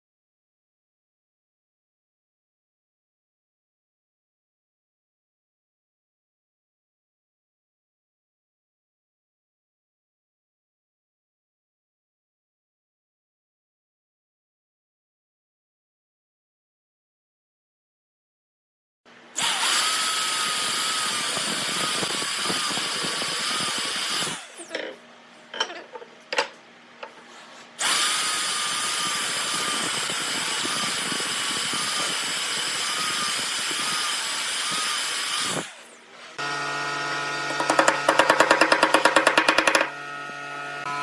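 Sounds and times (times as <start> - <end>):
electric power tool running: 19.4 - 24.8, 27.8 - 41.0
clicks and knocks: 25.5 - 27.2, 37.5 - 39.9.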